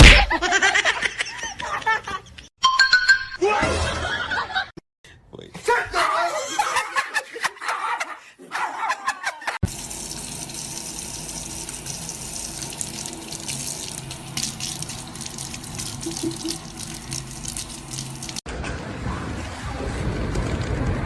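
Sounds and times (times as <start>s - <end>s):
water running from tap: 9.6s - 18.4s.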